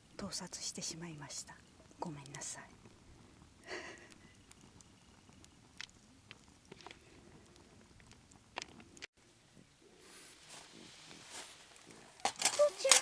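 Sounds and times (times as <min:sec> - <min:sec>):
faint sharp clicks and crackles: 0:00.5 - 0:09.8.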